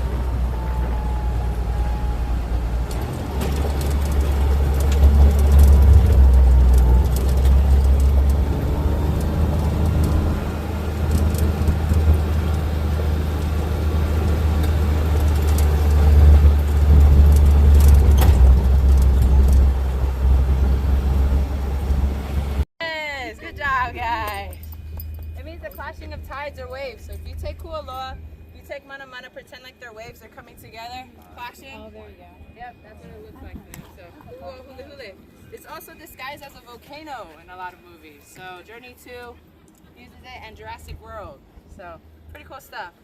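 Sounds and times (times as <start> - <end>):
vehicle engine and road noise: 0.0 - 22.7, 23.4 - 29.3
light knocks and rattles: 2.8 - 13.6.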